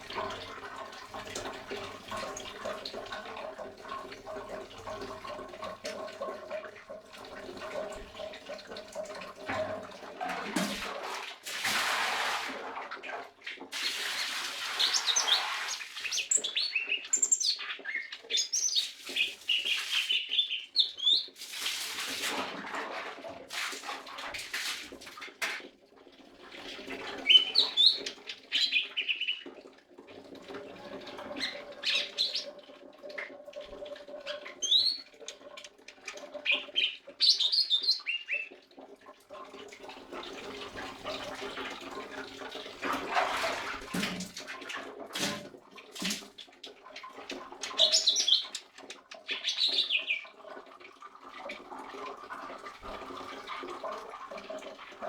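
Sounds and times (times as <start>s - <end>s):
bird chirping song: 36.4s - 38.5s.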